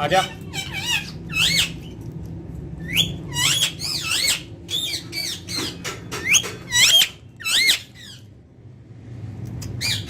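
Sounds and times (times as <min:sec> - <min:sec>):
parakeet chattering: 0:00.0 - 0:01.9, 0:02.8 - 0:08.2.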